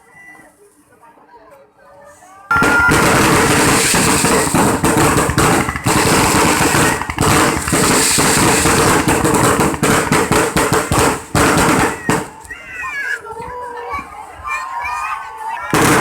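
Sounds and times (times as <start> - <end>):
fireworks bangs and crackling: 2.5 - 13.0, 15.7 - 16.0.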